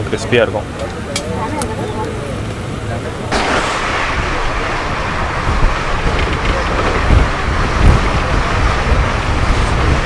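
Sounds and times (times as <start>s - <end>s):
heavy low thumps: 3.3s - 9.1s
train wheels rumbling on rails: 3.3s - 10.0s.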